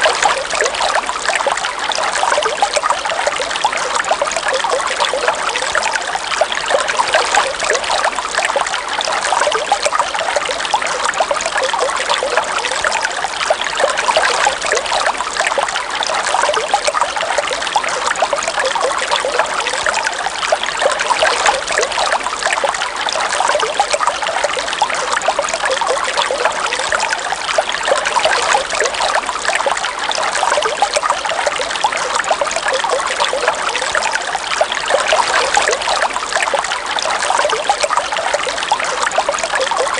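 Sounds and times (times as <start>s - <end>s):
river water running: 25.2s - 39.8s.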